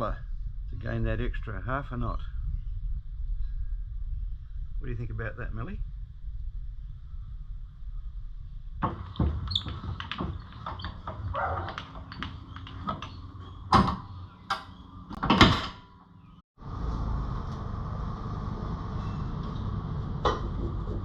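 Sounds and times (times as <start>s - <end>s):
low background rumble: 0.0s - 15.1s
knocks and clatters: 8.8s - 16.0s.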